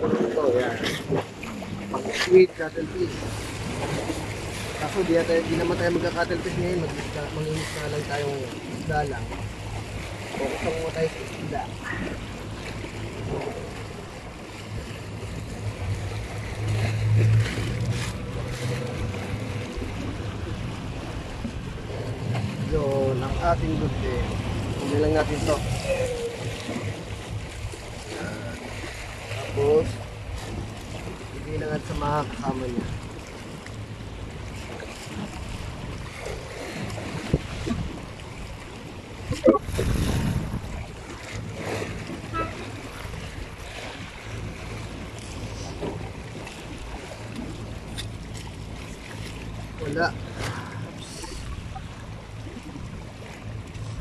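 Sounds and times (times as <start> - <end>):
boat engine drone: 0.0 - 54.0
sea noise: 0.0 - 54.0
wind: 0.0 - 54.0.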